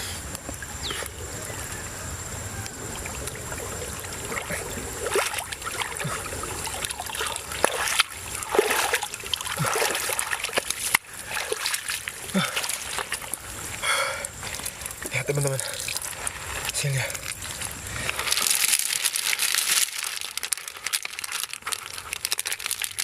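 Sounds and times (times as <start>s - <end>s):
hands splashing in shallow water: 3.0s - 13.6s.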